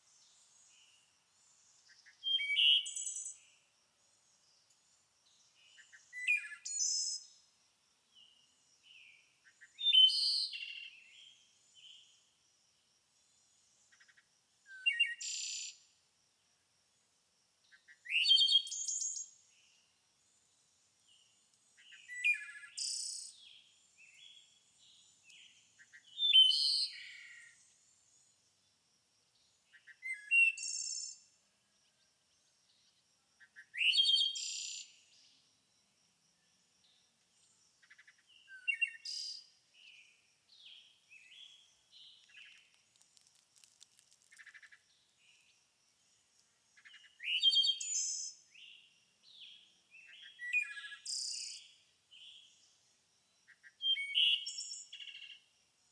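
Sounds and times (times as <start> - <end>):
songbird chirps and trills: 0.0 - 12.4, 13.2 - 16.0, 17.6 - 55.9.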